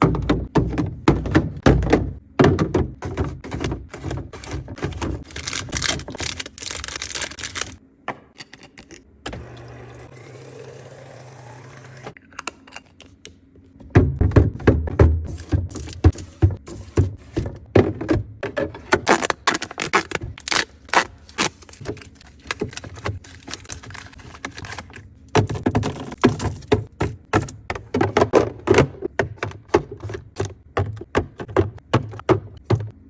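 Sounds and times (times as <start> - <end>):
food containers tapping and knocking: 0.0 - 5.3, 25.3 - 33.0.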